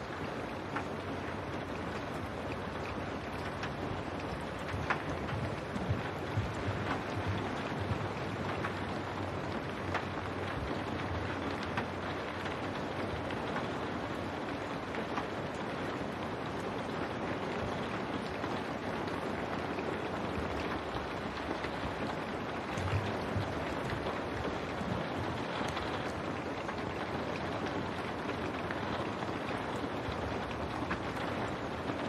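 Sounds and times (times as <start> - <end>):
rain on window glass: 0.0 - 32.0.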